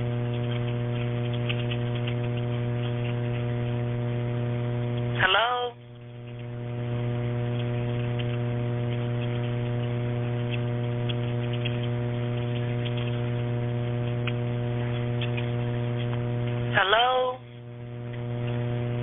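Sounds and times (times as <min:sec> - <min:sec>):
electrical hum on telephone line: 0:00.0 - 0:19.0
faint clicks: 0:00.2 - 0:03.5, 0:07.5 - 0:13.4, 0:14.0 - 0:16.6.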